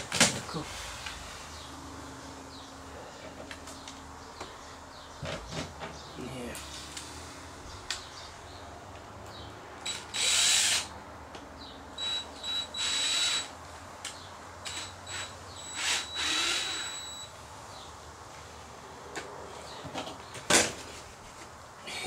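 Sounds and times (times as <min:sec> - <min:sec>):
power drill driving screws: 0:09.8 - 0:10.9, 0:12.0 - 0:13.6, 0:14.6 - 0:17.2.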